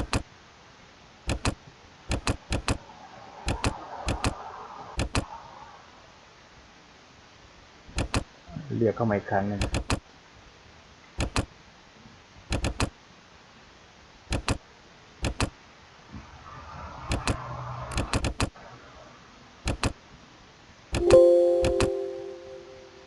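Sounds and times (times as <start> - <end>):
computer mouse clicking: 0.0 - 0.3, 1.3 - 2.8, 3.5 - 4.4, 5.0 - 5.3, 8.0 - 8.3, 9.6 - 10.0, 11.2 - 11.5, 12.5 - 13.0, 14.3 - 14.6, 15.2 - 15.6, 17.1 - 18.6, 19.6 - 20.0.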